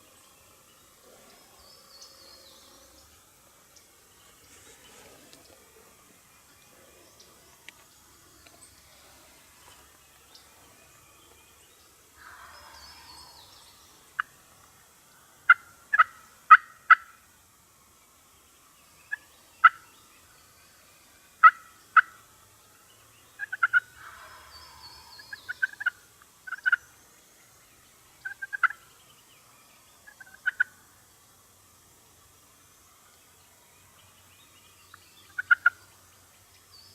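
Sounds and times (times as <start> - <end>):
turkey gobbles: 23.4 - 26.8, 35.4 - 35.8
turkey yelping: 23.4 - 26.8, 30.1 - 30.7, 35.4 - 35.8.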